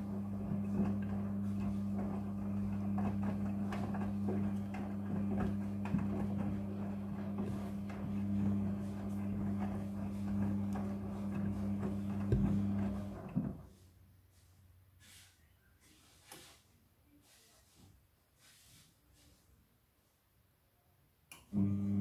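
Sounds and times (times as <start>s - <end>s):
washing machine humming and rattling: 0.0s - 13.7s, 21.6s - 22.0s.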